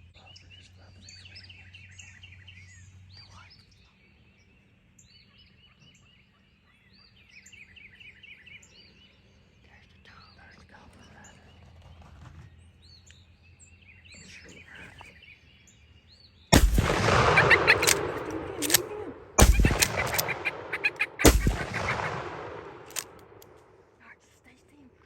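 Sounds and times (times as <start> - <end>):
faint songbird chirps: 0.0 - 12.0, 12.6 - 23.4
wild turkey gobbling: 16.6 - 23.2.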